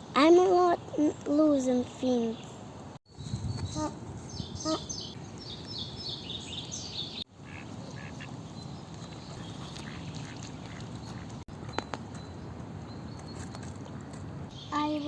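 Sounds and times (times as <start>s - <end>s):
birds chirping: 0.2s - 15.0s
short low bird calls: 3.6s - 8.4s.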